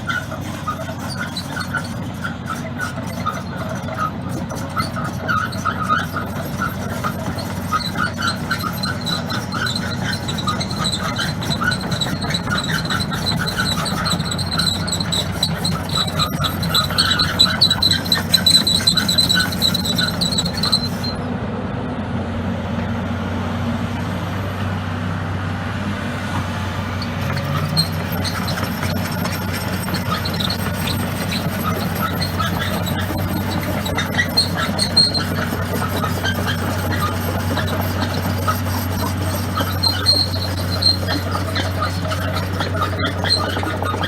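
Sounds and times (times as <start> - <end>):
excavator diesel engine running: 0.0 - 44.0
high wavering squeal: 7.8 - 21.3.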